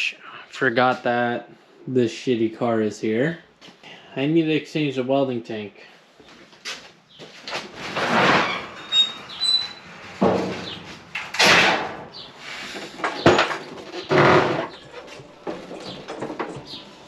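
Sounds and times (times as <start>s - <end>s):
high squeak: 8.4s - 9.9s
knocks and scrapes of handling: 12.4s - 17.0s.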